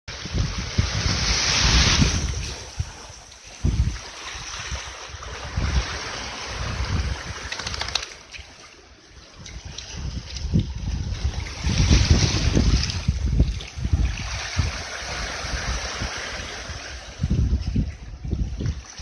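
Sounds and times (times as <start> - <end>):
wind buffeting microphone: 0.1 - 8.4, 9.1 - 19.0.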